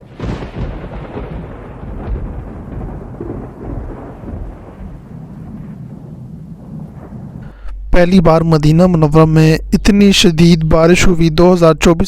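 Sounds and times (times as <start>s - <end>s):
heavy rain pouring: 0.0s - 6.8s
deep low rumble: 6.5s - 11.3s.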